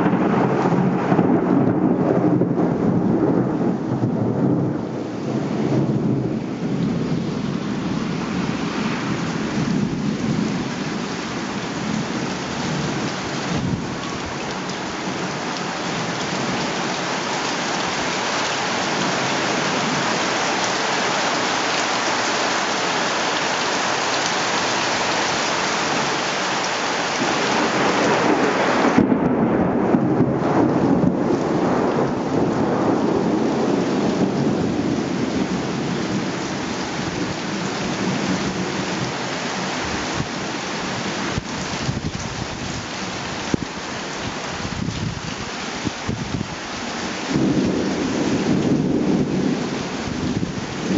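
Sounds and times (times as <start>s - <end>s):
thunder rumbling: 0.0s - 14.4s, 27.2s - 39.2s, 44.6s - 50.9s
rain pouring: 0.0s - 50.9s.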